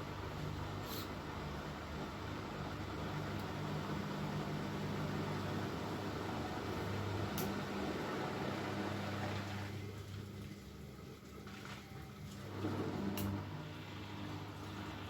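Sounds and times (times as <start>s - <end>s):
washing machine motor humming: 0.0s - 15.0s
water and laundry sloshing: 9.2s - 13.2s.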